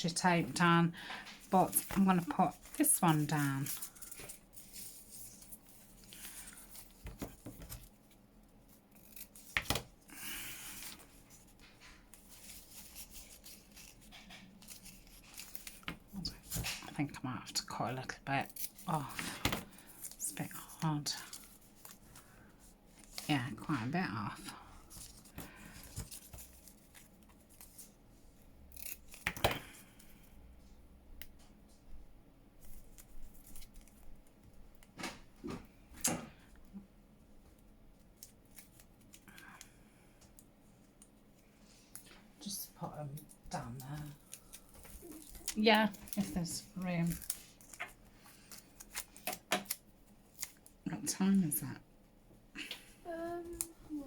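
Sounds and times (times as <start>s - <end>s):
scissors snipping paper: 8.7s - 9.9s, 28.7s - 29.5s
paper rubbing and rustling: 10.6s - 16.8s.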